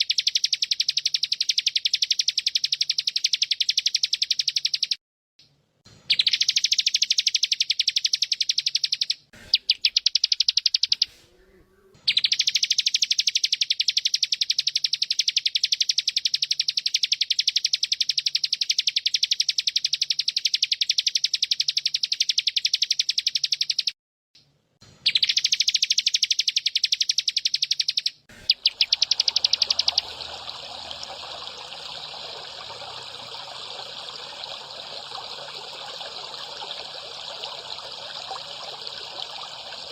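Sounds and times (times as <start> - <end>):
water trickling: 28.4 - 39.9
cicada buzzing trill: 28.5 - 39.9.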